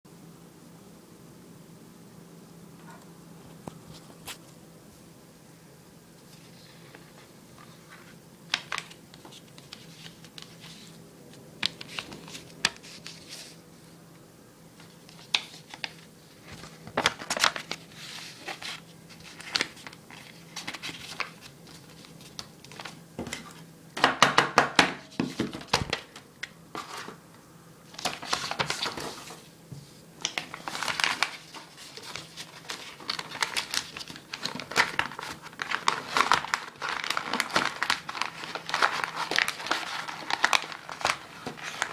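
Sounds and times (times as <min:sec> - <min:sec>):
paper crinkling and crumpling: 0:06.2 - 0:14.0, 0:14.7 - 0:23.7, 0:25.1 - 0:27.2, 0:27.8 - 0:41.9.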